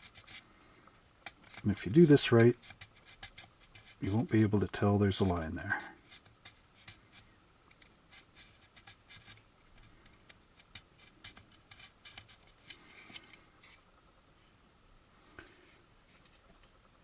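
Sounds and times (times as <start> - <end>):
needle file scraping plastic: 0.0 - 0.5, 1.2 - 13.8.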